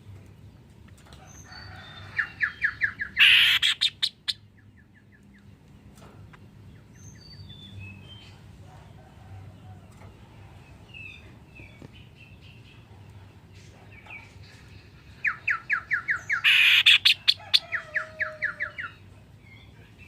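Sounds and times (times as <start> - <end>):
bird singing: 0.3 - 8.3, 14.0 - 20.0
harsh noisy bird call: 2.2 - 4.4, 15.2 - 19.0.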